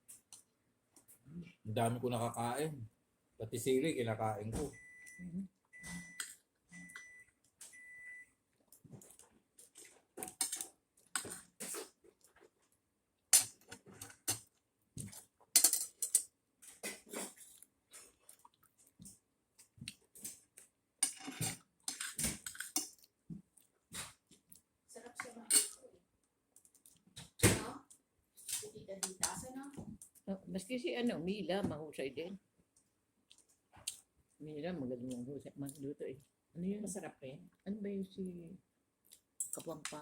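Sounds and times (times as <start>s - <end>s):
cutlery scraping on a plate: 16.8s - 17.5s, 21.0s - 22.9s
chewing: 17.2s - 20.7s, 26.6s - 27.2s, 32.8s - 34.1s.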